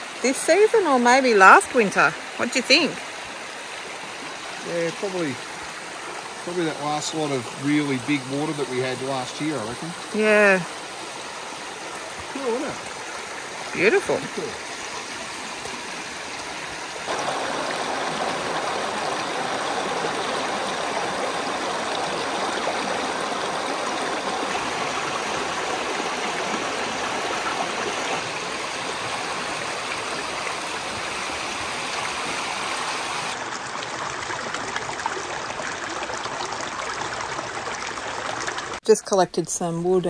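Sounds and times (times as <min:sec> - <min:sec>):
creek water rushing: 0:00.0 - 0:38.8.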